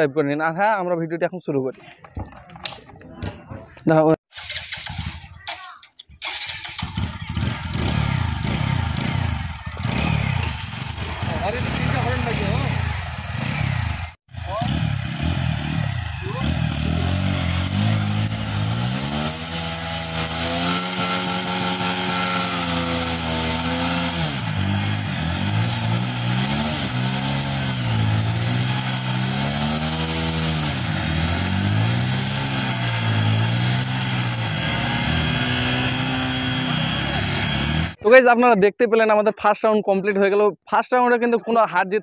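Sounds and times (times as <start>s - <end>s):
motorcycle engines revving hard: 6.2s - 38.0s.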